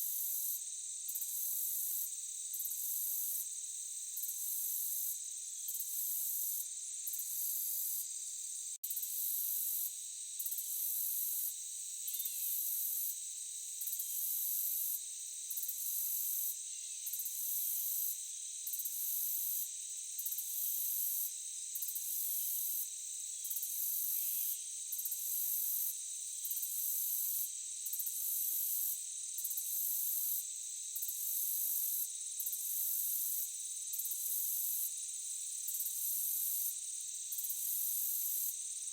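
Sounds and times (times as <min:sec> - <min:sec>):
insects buzzing: 0:05.1 - 0:20.4
pulsing insect trill: 0:12.0 - 0:13.2.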